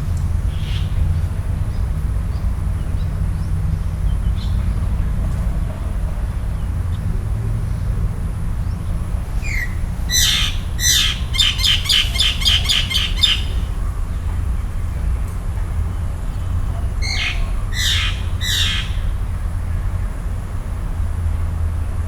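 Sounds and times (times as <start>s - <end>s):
bird calling harsh notes: 9.3s - 13.8s, 17.0s - 19.2s.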